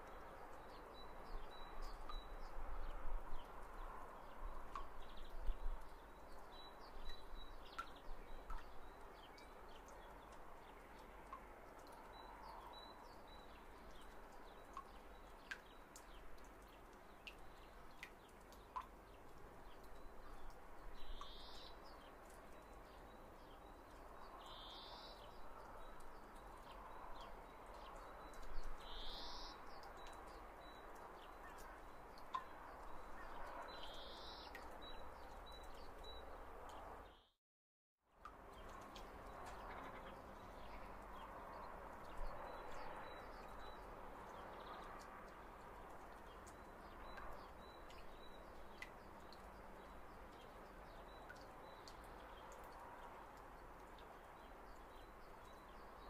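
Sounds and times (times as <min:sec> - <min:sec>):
faint ticks: 0:03.4 - 0:36.8.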